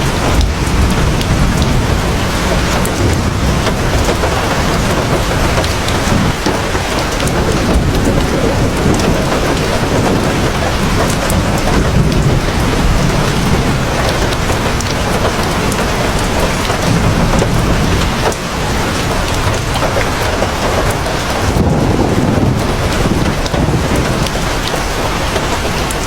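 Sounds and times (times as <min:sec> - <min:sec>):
heavy rain pouring: 0:00.0 - 0:26.0
low thunder rumble: 0:00.0 - 0:26.0
raindrops ticking: 0:00.0 - 0:26.0.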